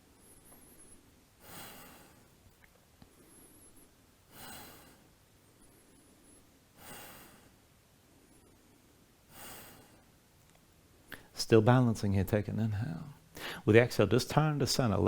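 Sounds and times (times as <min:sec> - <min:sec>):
person breathing deeply: 0:00.3 - 0:02.4, 0:03.2 - 0:07.6, 0:09.3 - 0:10.1, 0:13.3 - 0:13.7.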